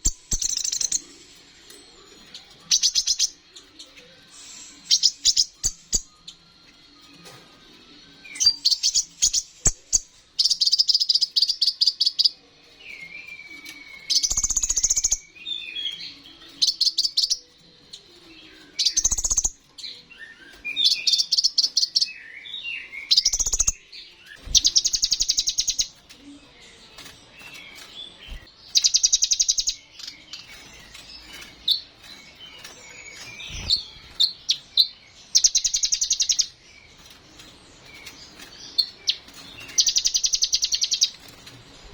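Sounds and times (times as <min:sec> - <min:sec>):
sunbird trilling and twittering: 0:00.0 - 0:06.5, 0:08.2 - 0:41.9.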